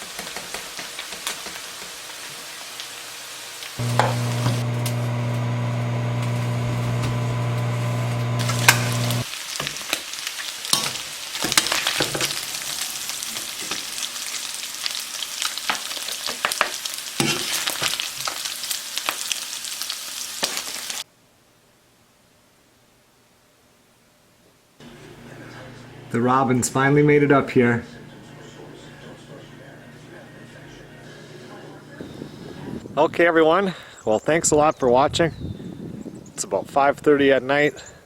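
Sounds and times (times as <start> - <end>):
potatoes sizzling in a pan: 0.0 - 21.1
loud steady hum: 3.8 - 9.2.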